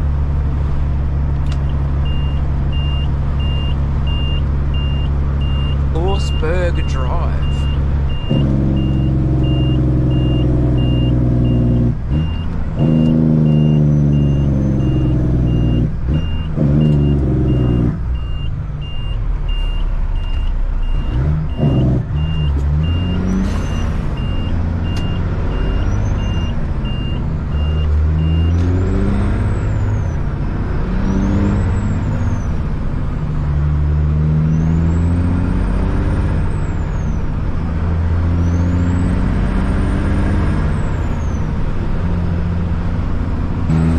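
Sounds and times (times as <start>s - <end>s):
diesel truck engine revving: 0.0s - 43.9s
reversing alarm beeping: 2.0s - 28.6s.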